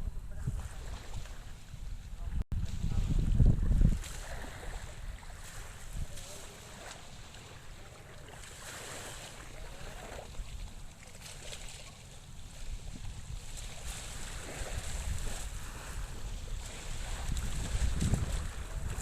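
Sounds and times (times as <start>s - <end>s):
wind buffeting microphone: 0.0s - 6.3s, 12.5s - 19.0s
calm sea: 0.0s - 19.0s.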